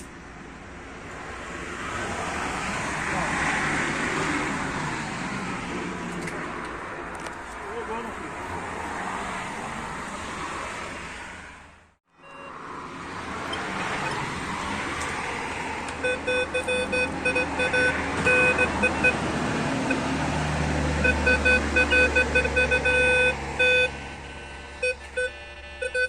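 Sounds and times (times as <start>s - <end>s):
metal detector beeps: 16.0s - 19.2s, 21.0s - 26.0s.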